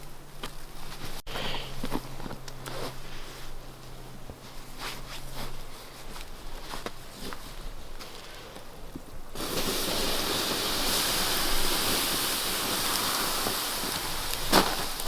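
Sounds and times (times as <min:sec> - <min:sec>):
water hissing on hot embers: 0:09.3 - 0:15.0.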